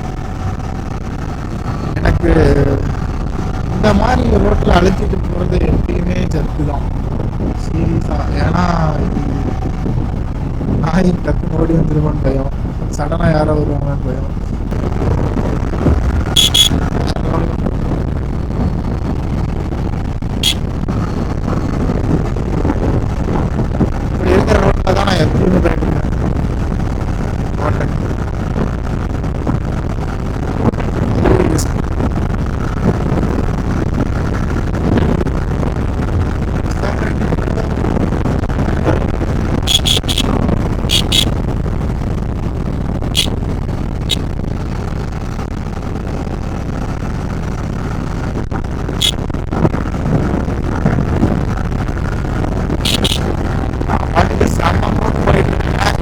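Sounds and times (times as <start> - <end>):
motorcycle engine and road noise: 0.0 - 56.0
high-pitched beep: 16.4 - 16.8, 39.7 - 40.3, 40.9 - 41.3, 52.9 - 53.2
short high-pitched sounds: 16.4 - 16.8, 39.7 - 40.3, 40.9 - 41.3, 52.9 - 53.2.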